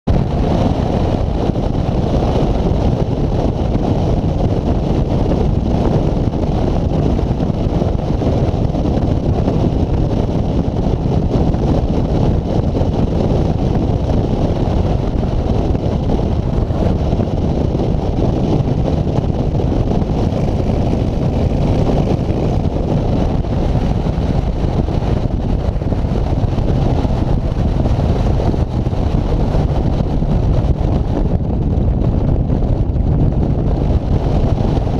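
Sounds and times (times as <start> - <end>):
wind and road noise: 0.0 - 34.9.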